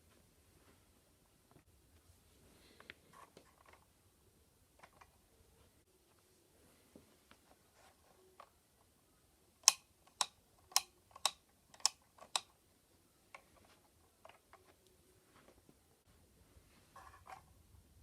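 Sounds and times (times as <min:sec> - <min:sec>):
plastic parts clicking: 0:09.6 - 0:12.6.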